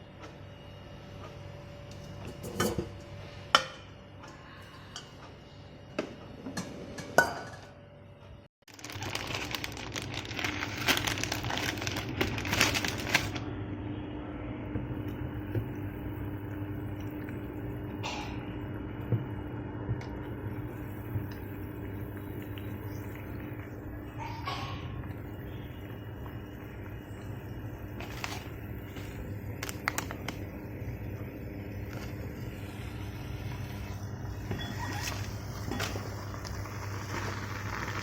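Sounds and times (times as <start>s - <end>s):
steady hum: 0.0s - 38.0s
dense crackling noise: 8.7s - 13.4s, 25.2s - 34.4s, 35.0s - 38.0s.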